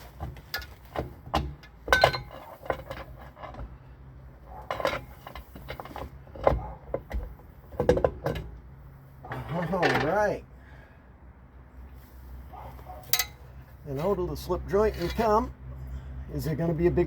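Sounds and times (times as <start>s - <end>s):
metal tools clinking and knocking: 0.5s - 3.7s, 4.5s - 8.6s, 9.3s - 10.2s, 13.0s - 13.6s.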